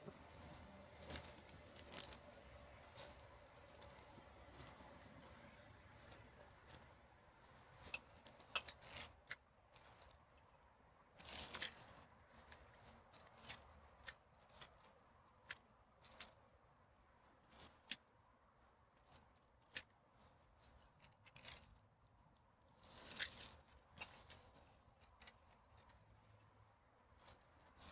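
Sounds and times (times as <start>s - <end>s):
litter crackling and rustling: 0.0s - 10.6s, 11.2s - 16.4s, 22.7s - 26.4s.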